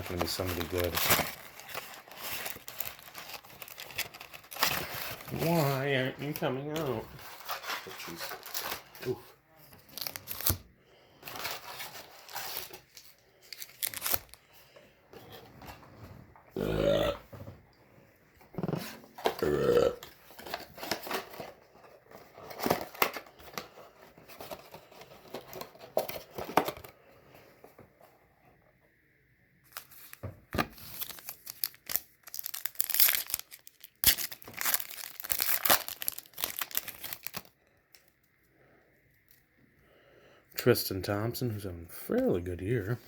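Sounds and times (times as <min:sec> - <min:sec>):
plastic wrappers tearing and crinkling: 0:00.0 - 0:10.6, 0:11.2 - 0:14.4, 0:20.2 - 0:23.6, 0:29.7 - 0:38.1.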